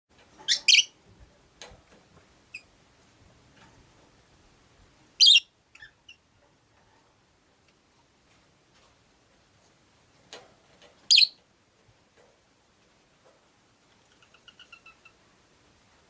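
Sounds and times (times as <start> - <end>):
lovebirds shrill chirps: 0.5 - 0.9, 5.2 - 6.2, 11.1 - 11.4.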